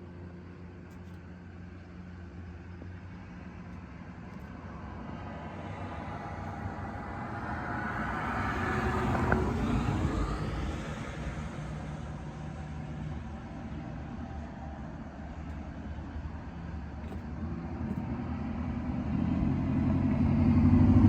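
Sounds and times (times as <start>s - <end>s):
low engine hum: 0.0s - 21.0s
motor vehicle passing by: 5.2s - 12.5s, 18.0s - 21.0s.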